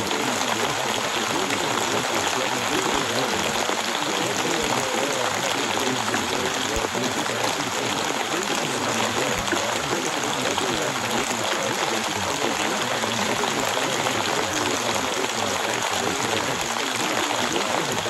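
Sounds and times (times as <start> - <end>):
faint voices murmuring: 0.0 - 18.0
steady rainfall hiss: 0.0 - 18.0.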